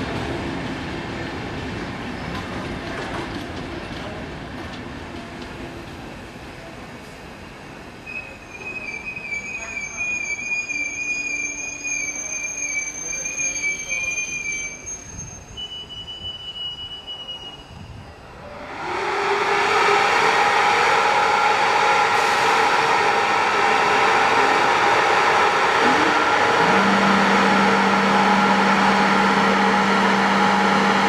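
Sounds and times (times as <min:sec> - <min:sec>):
train wheels squealing: 0:02.0 - 0:02.7, 0:08.0 - 0:18.6
locomotive fan whirring: 0:18.6 - 0:31.0.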